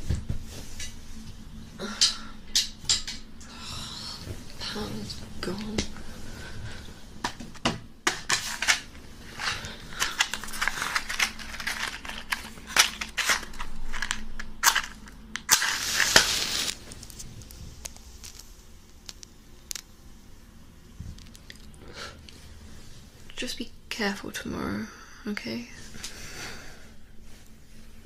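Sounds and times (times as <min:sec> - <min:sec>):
rustling and crinkling handling noise: 0:00.0 - 0:01.6, 0:04.2 - 0:19.8
sharp clicks and snaps: 0:17.4 - 0:19.9.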